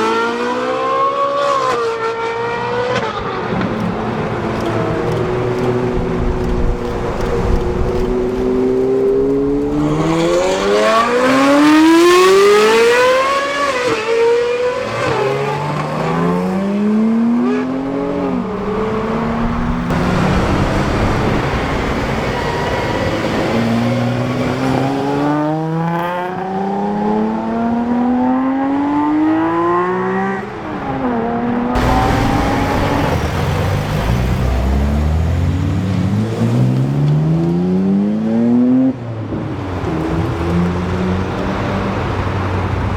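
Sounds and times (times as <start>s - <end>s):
car engines accelerating hard: 0.0s - 42.9s.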